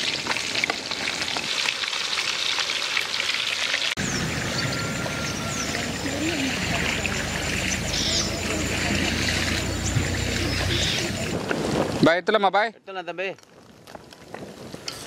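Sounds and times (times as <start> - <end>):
fish deep-frying in hot oil: 0.0 - 4.1
faint high chirps: 4.0 - 11.2
wind rumbling on microphone: 4.0 - 12.3, 13.4 - 15.0.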